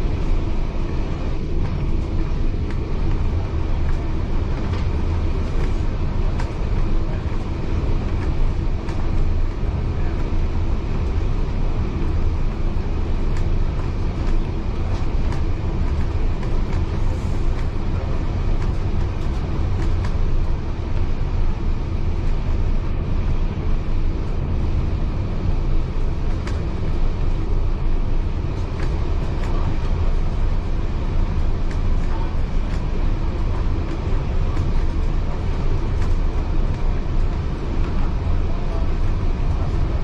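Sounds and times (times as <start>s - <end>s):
wheels rumbling on rail: 0.0s - 40.0s.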